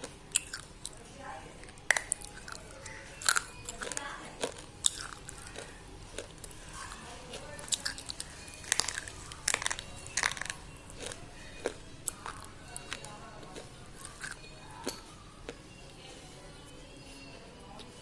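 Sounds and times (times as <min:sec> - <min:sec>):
person chewing crunchy pencils: 0:00.0 - 0:01.0, 0:01.6 - 0:15.7.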